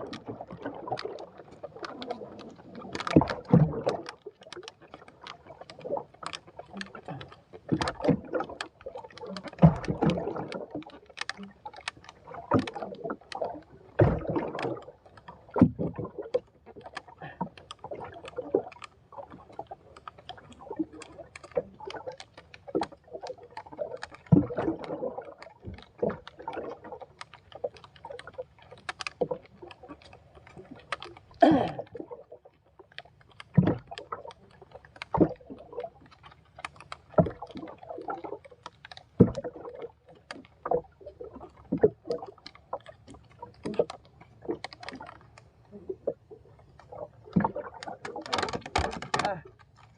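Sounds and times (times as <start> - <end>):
water splashing around boat: 0.0 - 49.9
sharp knocks and clicks: 47.3 - 49.9.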